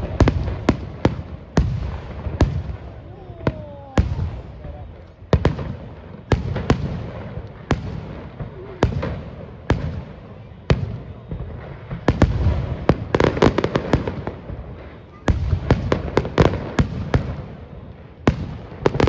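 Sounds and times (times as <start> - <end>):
low rumbling echo: 0.0 - 9.8
fireworks bangs: 0.0 - 19.0.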